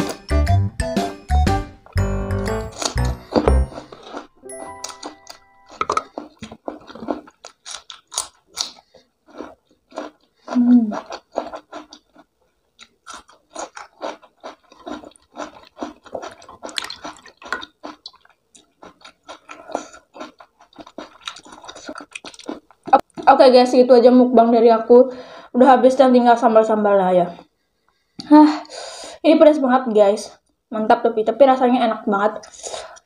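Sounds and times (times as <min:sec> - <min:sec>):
person chewing food: 0:01.9 - 0:23.3.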